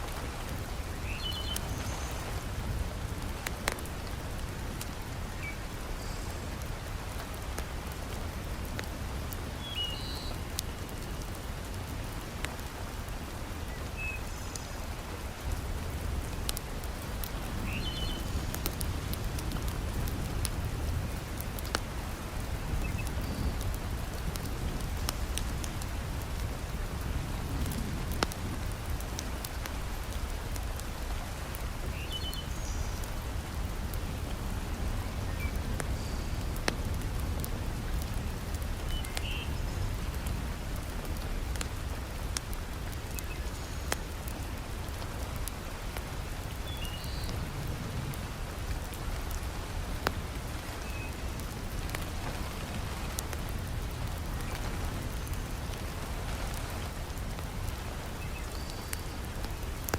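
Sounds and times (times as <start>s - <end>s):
wood fire crackling: 0.0s - 9.6s, 10.4s - 59.9s
heavy rain falling: 0.0s - 59.9s.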